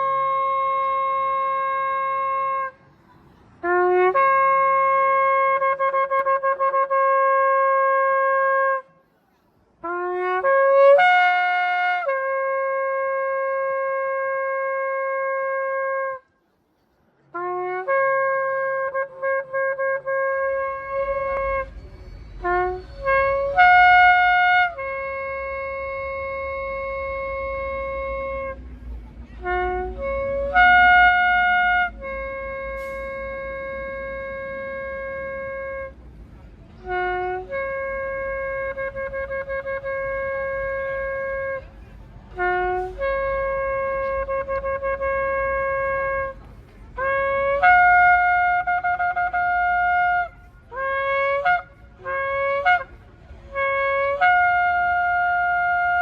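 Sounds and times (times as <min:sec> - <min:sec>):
ram's horn blasts: 0:00.0 - 0:09.1, 0:09.8 - 0:16.3, 0:17.3 - 0:56.0.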